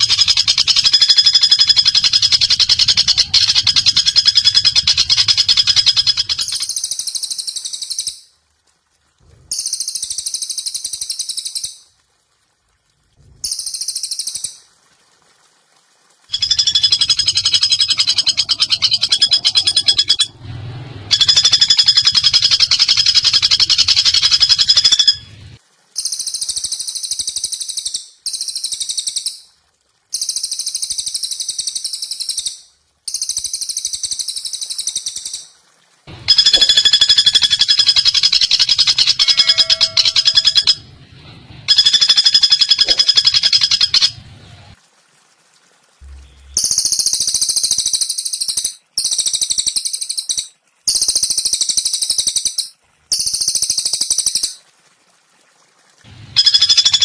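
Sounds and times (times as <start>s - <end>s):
bird trilling calls: 0.0s - 8.0s, 16.3s - 20.4s, 21.1s - 25.3s, 36.2s - 40.9s, 41.7s - 44.2s, 56.4s - 57.0s.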